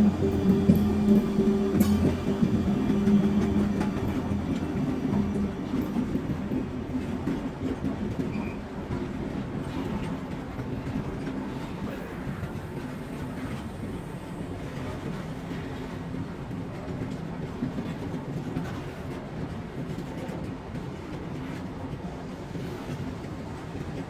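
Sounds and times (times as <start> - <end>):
locomotive hum: 0.0 - 8.4.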